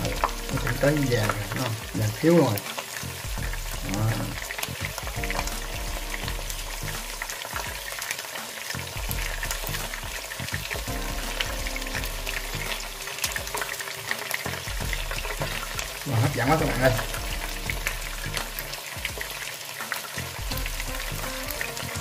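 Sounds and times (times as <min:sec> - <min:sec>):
chicken frying in oil: 0:00.0 - 0:22.0.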